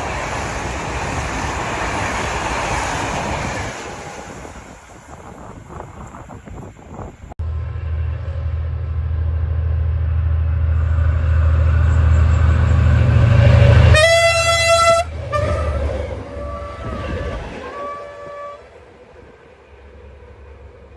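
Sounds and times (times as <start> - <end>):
diesel locomotive engine rumble: 0.0 - 20.9
locomotive horn blast: 7.5 - 18.8.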